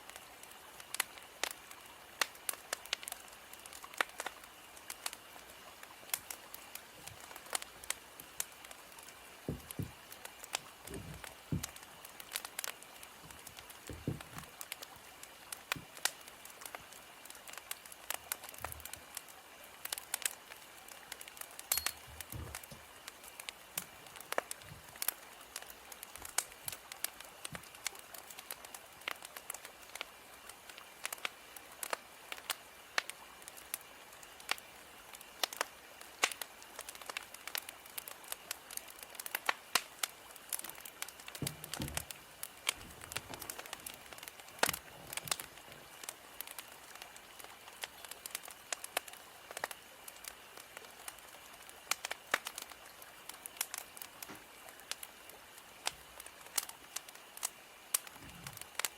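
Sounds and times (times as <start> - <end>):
fire popping and snapping: 0.0 - 58.9
soft steady hiss: 0.0 - 58.9
wood fire crackling: 0.0 - 58.9
dull low thuds: 9.5 - 10.0, 10.9 - 11.8, 13.9 - 14.4.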